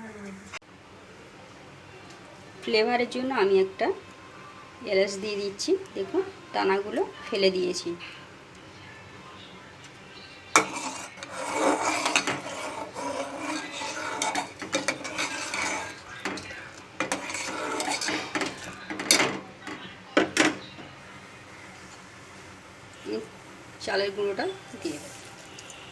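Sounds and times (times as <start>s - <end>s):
spoon clinking on pot: 10.6s - 20.9s
metal spoon scraping in a pot: 10.6s - 21.0s.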